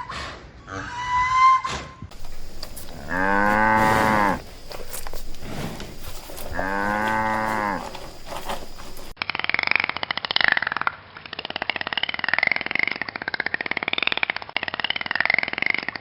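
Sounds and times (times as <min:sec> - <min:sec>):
cow mooing: 0:02.1 - 0:09.1.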